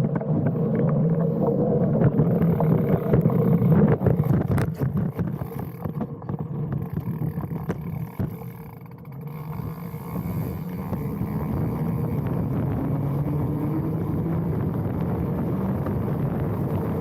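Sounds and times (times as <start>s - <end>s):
wind on microphone: 0.0s - 8.4s, 9.6s - 17.0s
bike knocking and rattling: 0.0s - 13.5s
bike tyres rumbling: 0.0s - 17.0s.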